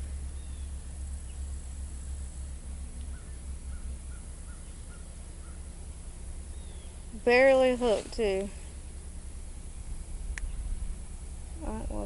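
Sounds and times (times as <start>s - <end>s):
low rumble: 0.0s - 12.0s
bird chirping: 0.2s - 1.6s, 3.1s - 7.1s.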